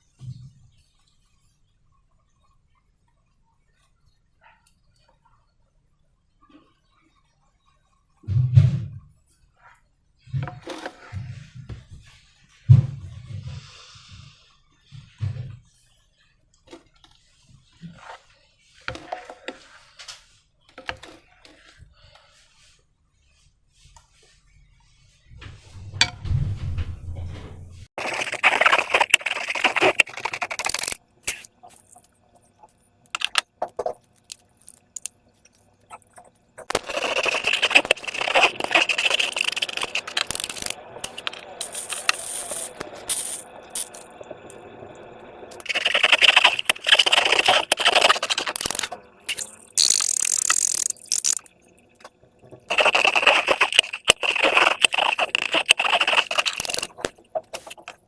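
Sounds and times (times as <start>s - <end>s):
hands squishing slime and balloons: 28.0s - 32.1s, 36.6s - 44.0s, 52.7s - 58.0s.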